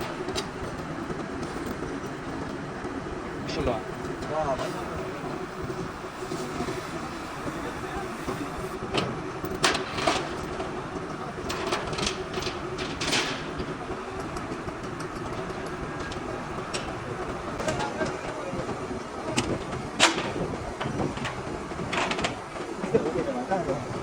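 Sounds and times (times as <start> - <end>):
faint steady hum: 3.2 - 9.4.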